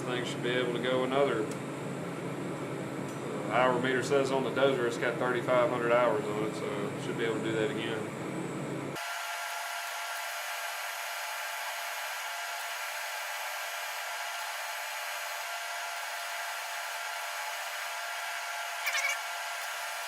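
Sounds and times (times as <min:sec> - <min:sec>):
welding arc hissing: 0:09.0 - 0:20.0.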